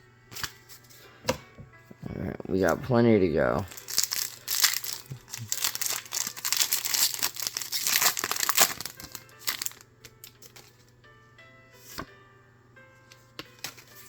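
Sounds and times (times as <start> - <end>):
faint background music: 0.0 - 14.0
foil wrapper tearing and crinkling: 3.7 - 10.8.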